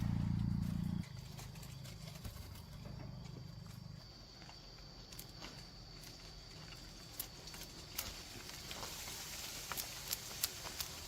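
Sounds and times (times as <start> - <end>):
steady low hum: 0.0 - 4.0
faint high insect-like tone: 0.0 - 11.0.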